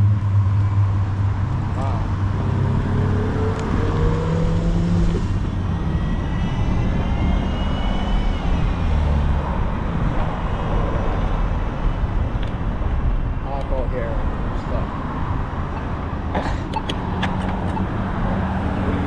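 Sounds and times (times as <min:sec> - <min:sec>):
passing road traffic: 0:00.0 - 0:19.0
faint rising whine: 0:04.1 - 0:12.4.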